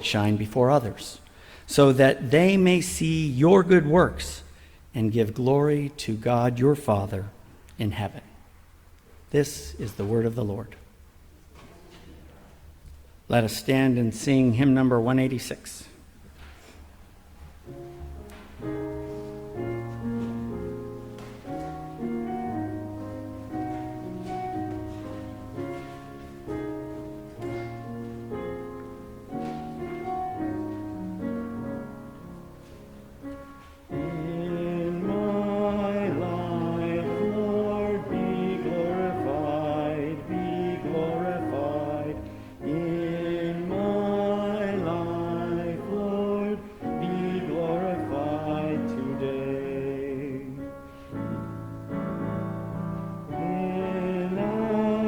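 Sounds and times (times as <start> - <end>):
keyboard playing: 17.8 - 46.2
congregation singing a hymn: 33.9 - 51.4, 53.2 - 55.0.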